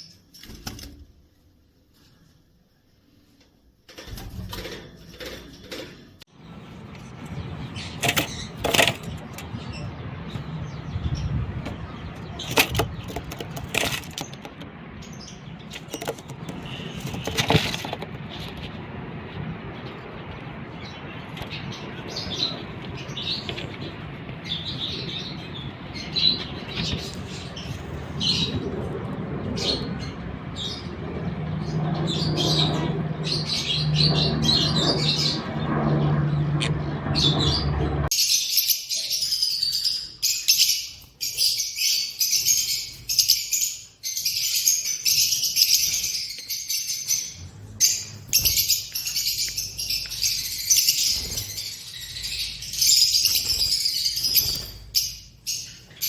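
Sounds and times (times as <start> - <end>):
pet birds chirping: 5.5 - 56.0
wings flapping: 50.8 - 51.9, 53.0 - 55.1.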